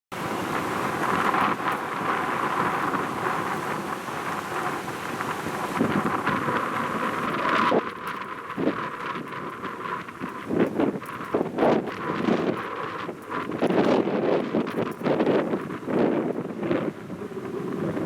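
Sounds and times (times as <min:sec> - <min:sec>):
wind buffeting microphone: 0:00.1 - 0:18.0.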